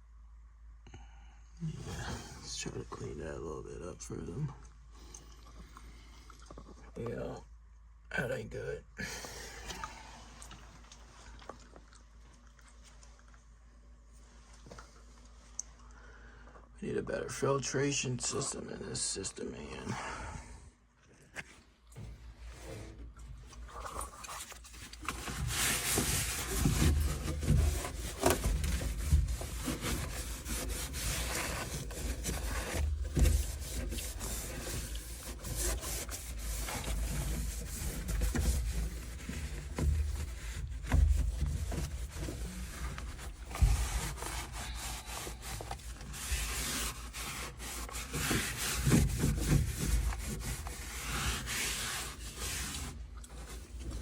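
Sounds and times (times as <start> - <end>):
scrubbing and scraping strokes: 22.0 - 54.0.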